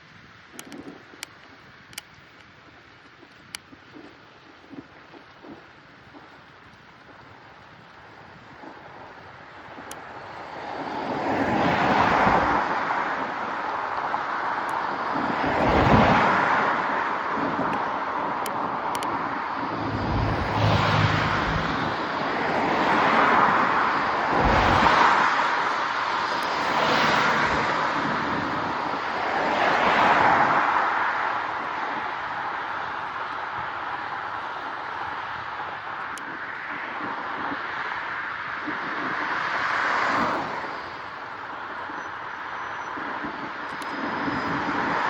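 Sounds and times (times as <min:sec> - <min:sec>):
rushing wind noise: 0:07.1 - 0:45.0
low buffeting rumbles on microphone: 0:19.0 - 0:22.9, 0:23.8 - 0:25.4.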